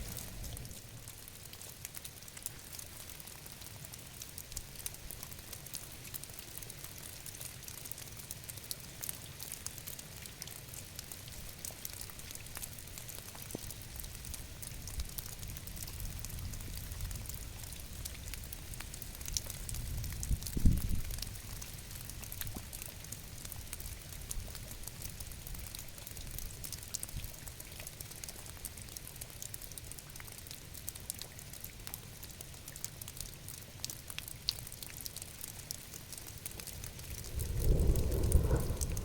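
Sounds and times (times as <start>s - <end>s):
steady rain falling: 0.0s - 39.0s
low rumble: 36.5s - 39.0s.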